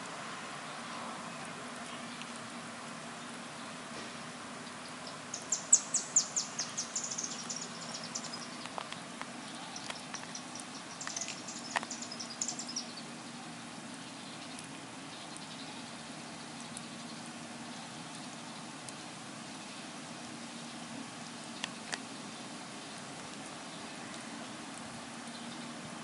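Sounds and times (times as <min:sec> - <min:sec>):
low steady hum: 0:00.0 - 0:26.0
small bird chirping: 0:04.7 - 0:18.7.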